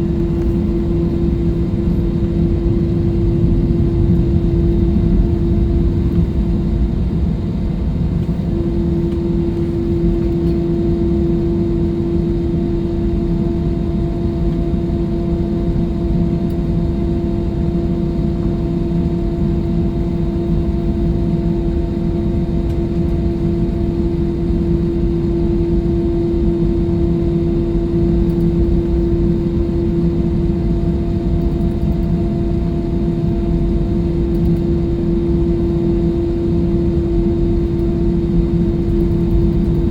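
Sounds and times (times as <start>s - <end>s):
constant hum: 0.0s - 39.9s
jet engine rumble in cabin: 0.0s - 39.9s.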